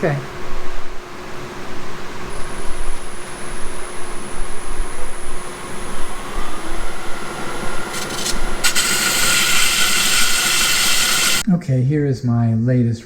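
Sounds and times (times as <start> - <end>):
loud steady hiss: 2.1 - 11.5
lathe machine hum: 2.2 - 11.4
sandpaper rubbing spinning wood: 2.7 - 11.4.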